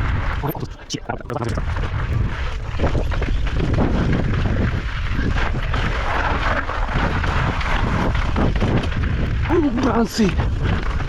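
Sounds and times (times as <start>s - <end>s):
wind rumble on microphone: 0.0s - 11.0s
bike rattling over bumps: 1.9s - 11.0s.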